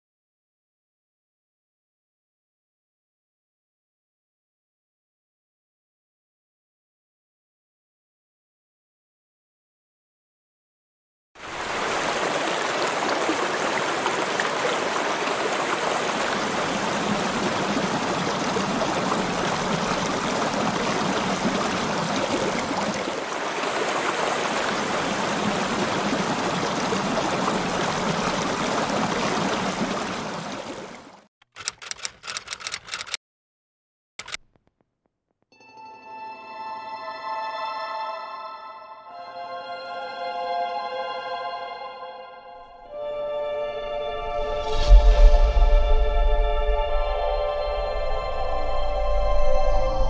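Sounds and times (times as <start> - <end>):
water rushing and splashing: 11.4 - 32.5
typewriter keystrokes: 31.4 - 33.2, 34.2 - 34.8.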